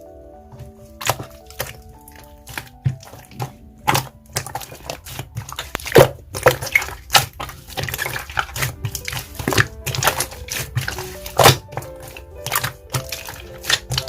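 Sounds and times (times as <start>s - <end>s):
slime squished by hand crackling: 0.5s - 14.0s.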